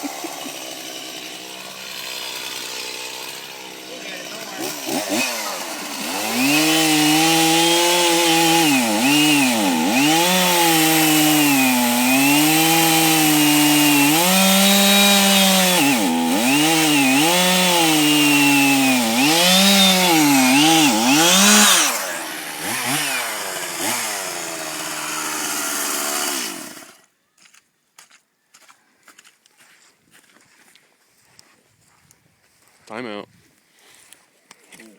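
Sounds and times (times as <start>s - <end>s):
chainsaw cutting at full throttle: 0.0s - 27.0s.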